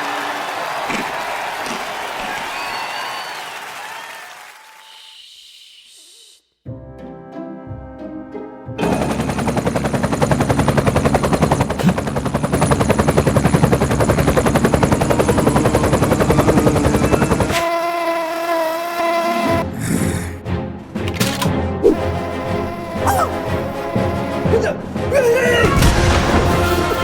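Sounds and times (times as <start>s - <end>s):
fly buzzing: 17.1s - 20.3s, 21.8s - 25.0s.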